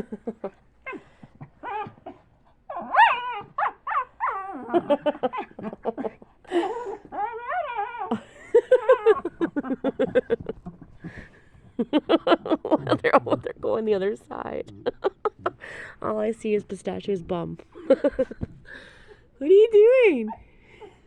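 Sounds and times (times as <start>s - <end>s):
dogs whining and play-growling: 0.4s - 12.0s
dogs yipping: 1.6s - 5.5s.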